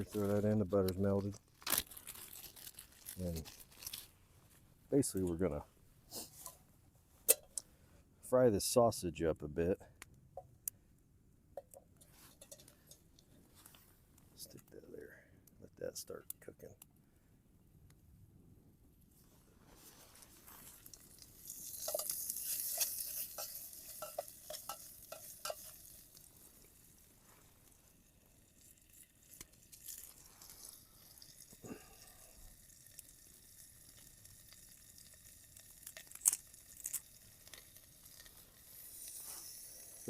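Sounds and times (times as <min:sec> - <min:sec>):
sausage sizzling in a pan: 0:20.1 - 0:40.0.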